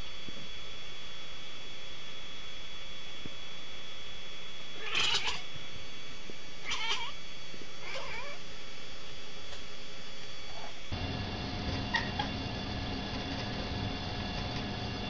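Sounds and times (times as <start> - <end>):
cat meowing: 4.8 - 5.5, 6.6 - 7.2, 7.8 - 8.4.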